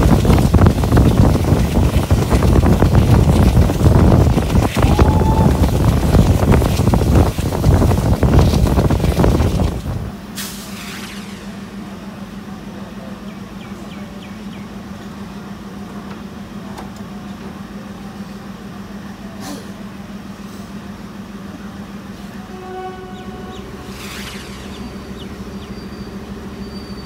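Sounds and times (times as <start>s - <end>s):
train running rumble: 0.0s - 10.7s, 11.3s - 27.0s
steady low hum: 0.0s - 27.0s
short hiss: 10.4s - 11.6s.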